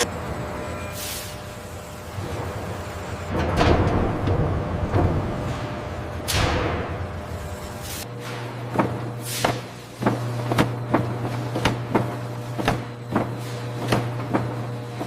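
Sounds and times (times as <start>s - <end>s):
machinery low hum: 0.0s - 15.0s
machine clacks: 8.3s - 15.0s.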